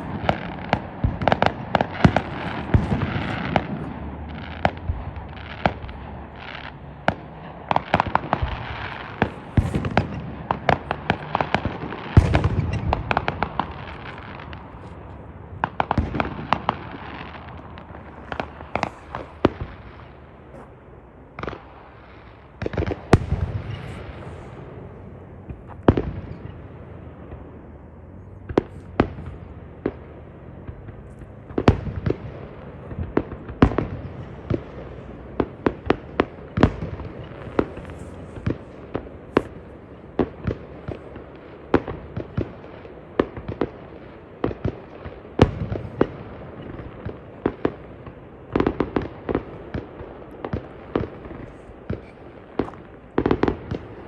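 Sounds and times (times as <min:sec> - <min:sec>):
fireworks bangs: 0:00.0 - 0:54.0.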